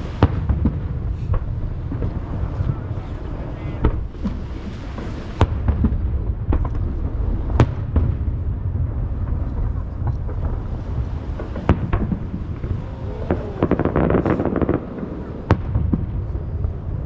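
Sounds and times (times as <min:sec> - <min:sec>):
fireworks booming: 0:00.0 - 0:17.0
fireworks cracking: 0:00.0 - 0:17.0.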